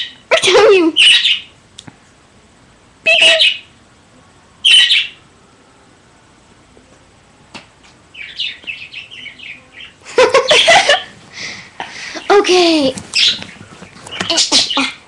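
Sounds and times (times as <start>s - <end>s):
pet bird squawking: 0.0s - 1.5s, 3.1s - 3.7s, 4.6s - 5.2s, 13.2s - 15.0s
high bird chirps: 0.9s - 1.6s, 4.6s - 5.2s, 8.1s - 10.8s, 13.1s - 15.0s.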